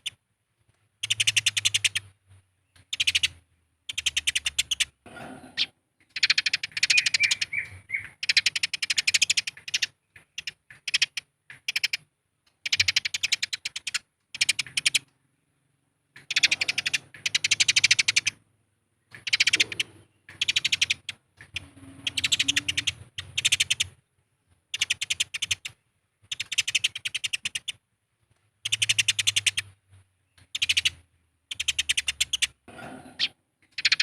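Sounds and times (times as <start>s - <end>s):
sparrows chirping sharply: 1.0s - 18.4s, 19.0s - 24.0s, 24.7s - 27.8s, 28.6s - 34.0s.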